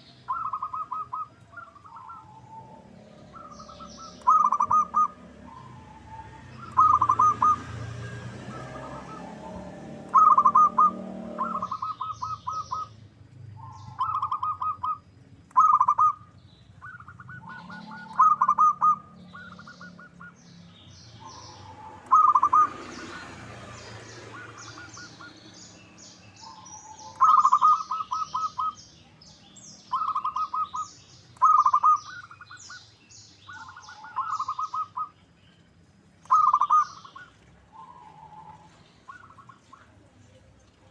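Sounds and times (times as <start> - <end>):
dove cooing: 0.0 - 12.9, 13.6 - 15.0, 15.6 - 16.2, 16.8 - 20.4, 21.2 - 23.3, 24.2 - 25.5, 26.4 - 28.8, 29.9 - 30.8, 31.4 - 32.4, 33.5 - 35.1, 36.2 - 40.0
small birds chirping: 0.0 - 40.9.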